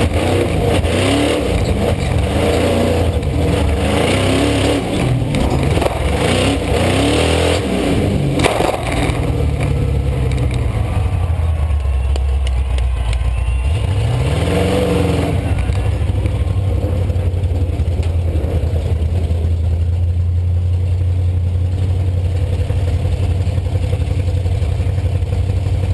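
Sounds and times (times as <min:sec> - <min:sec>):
truck engine revving: 0:00.0 - 0:25.3
sharp knocks and clatter: 0:05.0 - 0:06.5.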